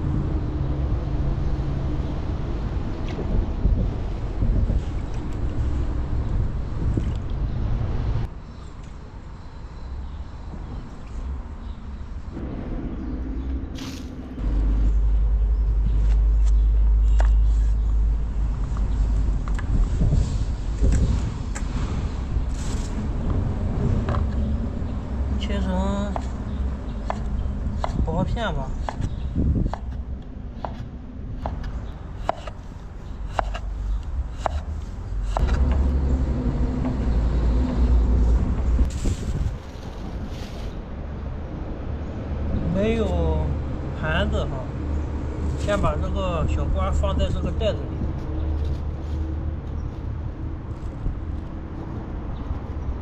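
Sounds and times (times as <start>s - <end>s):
vehicle passing with deep rumble: 0.0s - 8.3s, 10.7s - 53.0s.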